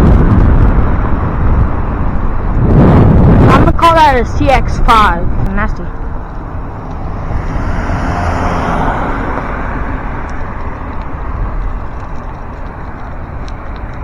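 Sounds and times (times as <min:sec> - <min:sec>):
wind rumble on microphone: 0:00.0 - 0:14.0
car passing close by: 0:05.9 - 0:11.5.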